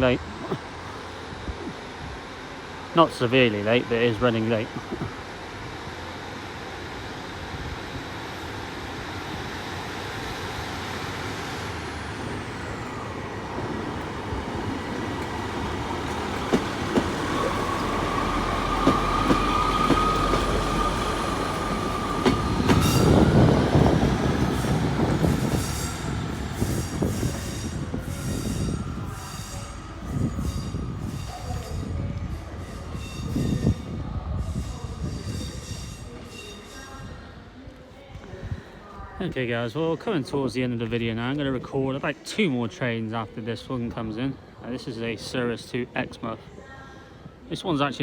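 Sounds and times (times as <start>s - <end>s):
train running noise: 0.0s - 39.6s
train whine: 0.0s - 48.0s
wheels clicking over rail joints: 13.5s - 23.3s.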